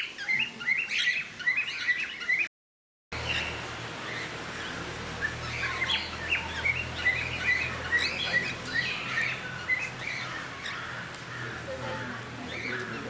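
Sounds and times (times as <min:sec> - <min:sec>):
parrots chirping: 0:03.2 - 0:13.0.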